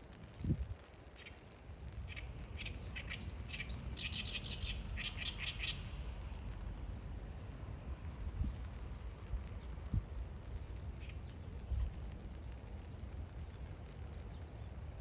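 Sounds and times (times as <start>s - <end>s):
steady low rumble: 0.0s - 15.0s
small bird chirping: 2.1s - 6.0s.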